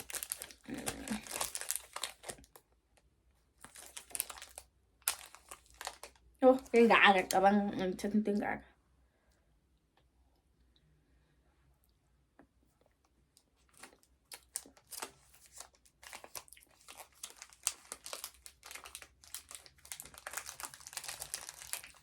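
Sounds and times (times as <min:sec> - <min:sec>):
wrapper crinkling and tearing: 0:00.0 - 0:02.6, 0:03.6 - 0:07.4, 0:13.7 - 0:22.0.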